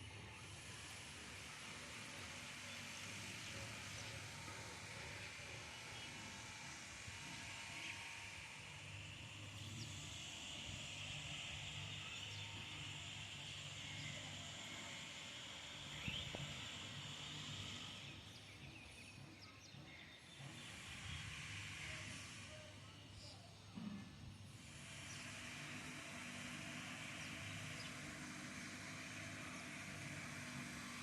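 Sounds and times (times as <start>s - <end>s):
steady hiss: 20.4s - 31.0s.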